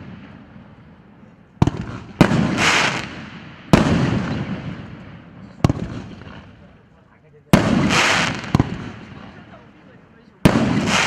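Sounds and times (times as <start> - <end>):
firework bangs with rumble: 1.6 - 6.6, 7.5 - 9.5, 10.4 - 11.0
firework hissing burst: 1.9 - 4.4.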